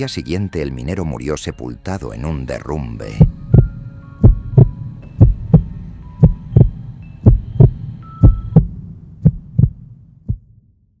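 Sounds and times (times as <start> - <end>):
faint held high tones: 2.9 - 8.7
heartbeat thumps: 3.1 - 10.6.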